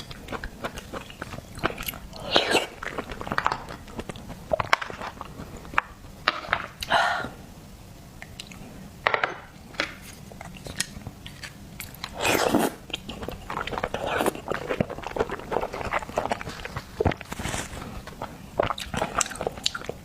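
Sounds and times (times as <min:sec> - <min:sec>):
chewing and crunching: 0:00.0 - 0:06.0, 0:10.3 - 0:20.0.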